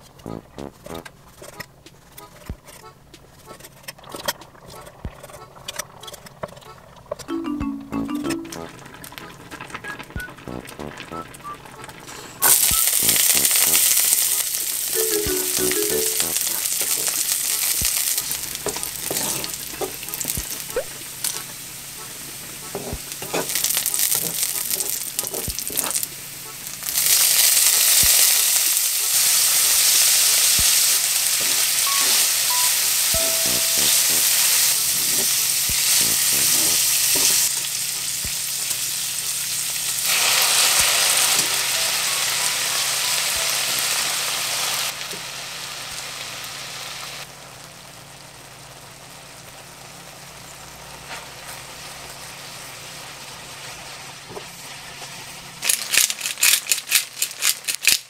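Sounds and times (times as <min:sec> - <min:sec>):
shrimp sizzling in hot oil: 0:12.1 - 0:58.0
pepper grinder rattling: 0:55.6 - 0:58.0.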